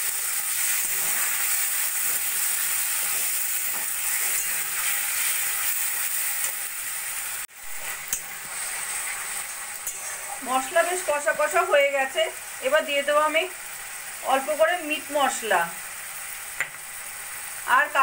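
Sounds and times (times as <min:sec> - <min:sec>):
masala sizzling in a pan: 0:00.0 - 0:18.0
metal spatula stirring: 0:00.5 - 0:05.8, 0:07.8 - 0:11.0.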